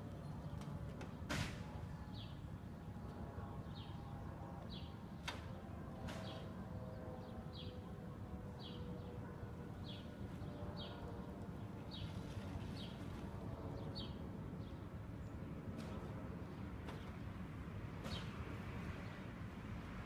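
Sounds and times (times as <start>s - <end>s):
sharp knocks from roofing work: 0.6s - 1.8s, 5.2s - 6.5s, 18.0s - 18.5s.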